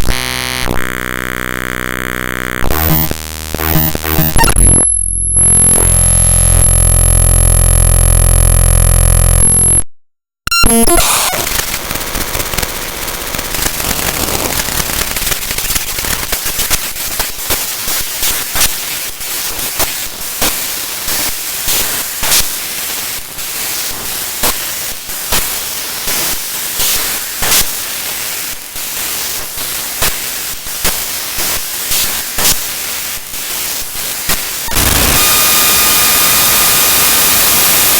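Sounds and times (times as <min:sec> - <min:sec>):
sharp clicks and crackles: 0:10.8 - 0:18.8, 0:33.3 - 0:37.9
harsh static hiss: 0:10.9 - 0:37.9.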